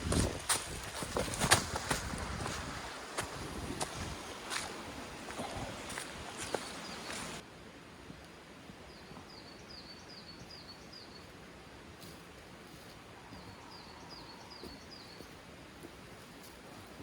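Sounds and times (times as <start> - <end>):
faint outdoor hiss: 0.0 - 17.0
small bird chirping: 13.4 - 15.4.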